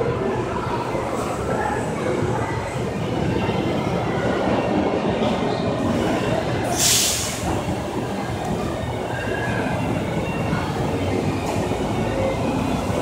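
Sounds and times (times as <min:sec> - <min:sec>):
loud hiss: 0:06.7 - 0:07.5.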